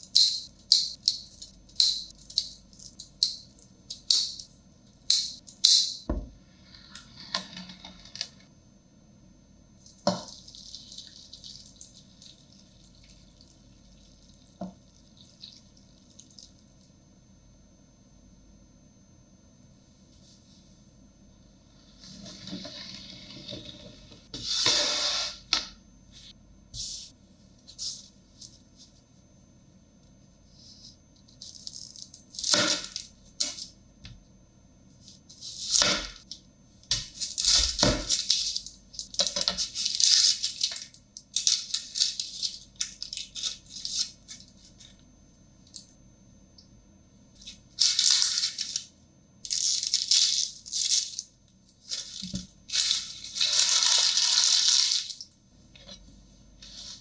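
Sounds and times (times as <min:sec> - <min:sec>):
rustling and scraping: 0:55.7 - 0:57.0.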